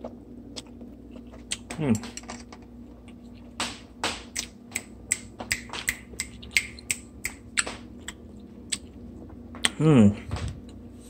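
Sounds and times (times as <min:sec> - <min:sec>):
person chewing noodles: 0:00.0 - 0:02.0, 0:05.5 - 0:09.8.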